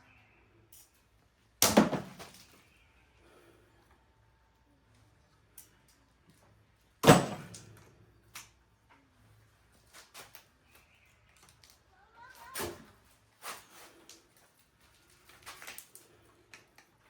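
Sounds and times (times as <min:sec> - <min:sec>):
light clicks of tools: 0:04.9 - 0:06.5
sharp metal clank: 0:07.0 - 0:07.6.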